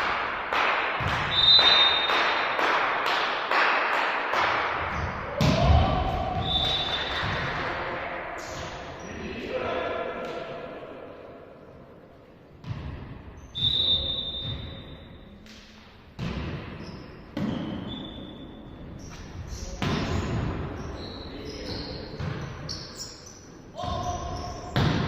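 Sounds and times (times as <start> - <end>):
sneakers squeaking on court floor: 12.6 - 15.4, 16.2 - 25.0
volleyball being struck: 24.7 - 25.0.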